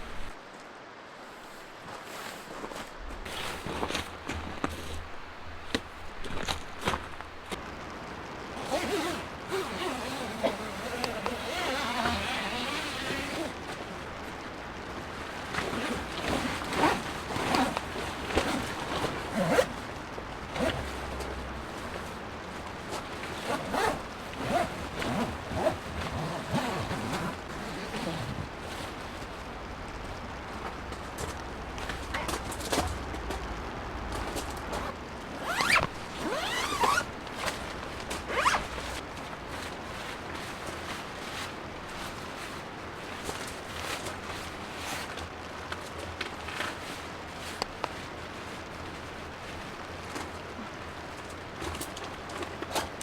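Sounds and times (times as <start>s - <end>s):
fabric rustling swishes: 0.0s - 0.4s, 1.2s - 7.6s, 8.6s - 33.6s, 34.2s - 45.1s
steady background hiss: 0.0s - 53.0s
zipper rasping: 8.6s - 13.6s, 15.6s - 19.8s, 20.5s - 22.0s, 23.2s - 29.0s, 34.4s - 39.0s.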